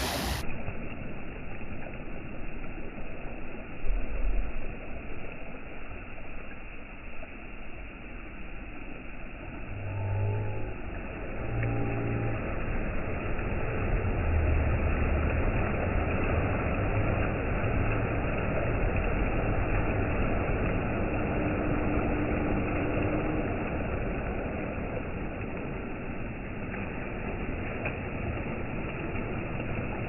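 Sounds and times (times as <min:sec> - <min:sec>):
waves washing in: 0:00.0 - 0:30.0.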